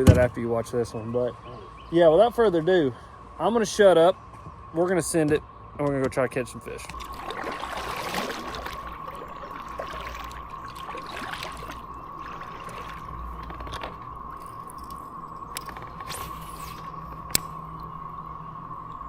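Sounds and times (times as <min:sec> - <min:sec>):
cicada chorus drone: 0:00.0 - 0:19.0
water trickling and splashing: 0:06.8 - 0:17.3.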